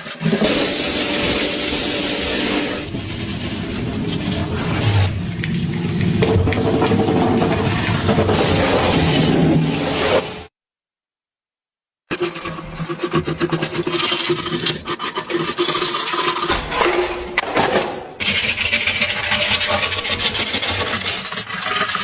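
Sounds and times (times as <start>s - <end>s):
scraping and rasping strokes: 0.1s - 10.5s, 18.2s - 22.0s.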